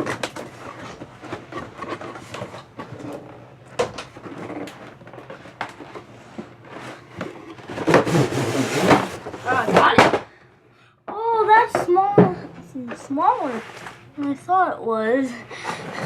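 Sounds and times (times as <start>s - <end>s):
cardboard and plastic packaging rustling: 0.0s - 10.4s.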